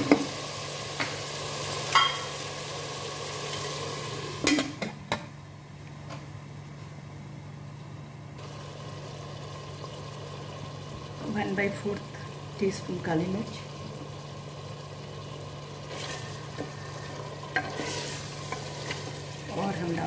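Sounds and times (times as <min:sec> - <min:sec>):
meat and onions sizzling: 0:00.0 - 0:04.5, 0:12.4 - 0:20.0
pot lid clanking: 0:01.9 - 0:02.3.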